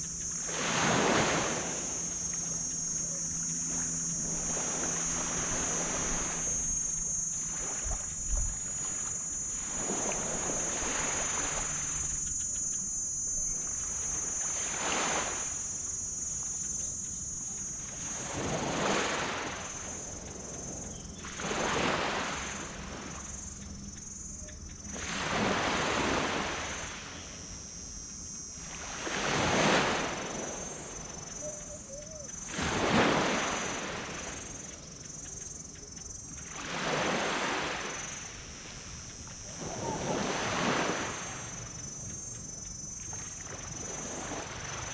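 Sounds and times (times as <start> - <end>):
low hum: 0.0 - 32.5
high-pitched hiss: 0.0 - 44.9
waves washing onto beach: 36.5 - 41.5.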